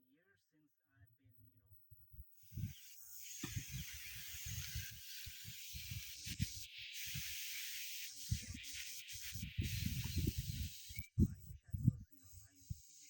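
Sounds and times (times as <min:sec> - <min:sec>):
steady outdoor hiss: 0:02.4 - 0:13.0
wind rumbling on microphone: 0:02.5 - 0:02.8, 0:03.4 - 0:07.3, 0:08.3 - 0:08.6, 0:09.2 - 0:12.8.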